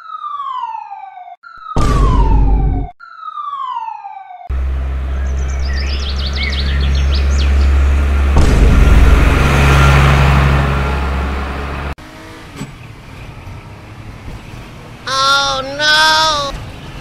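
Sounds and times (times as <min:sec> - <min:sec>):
loud car engine: 0:04.5 - 0:17.0.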